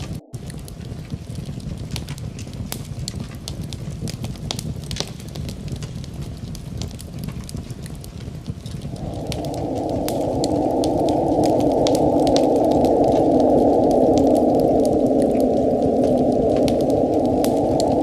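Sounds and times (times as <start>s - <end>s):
steady rushing noise: 0.0s - 3.8s, 8.7s - 18.0s
low fire rumble: 0.0s - 18.0s
wood fire crackling: 0.0s - 18.0s.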